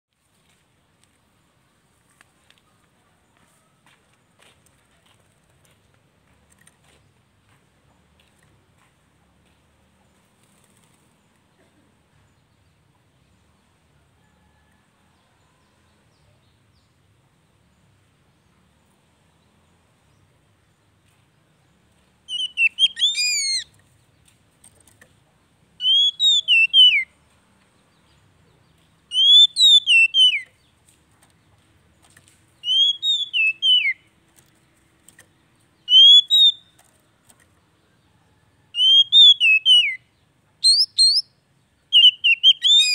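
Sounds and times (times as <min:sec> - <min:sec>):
bird singing whistled phrases: 0:22.3 - 0:23.7, 0:25.8 - 0:27.1, 0:29.1 - 0:30.5, 0:32.6 - 0:34.0, 0:35.9 - 0:36.7, 0:38.8 - 0:40.0, 0:40.6 - 0:41.3, 0:41.9 - 0:42.9.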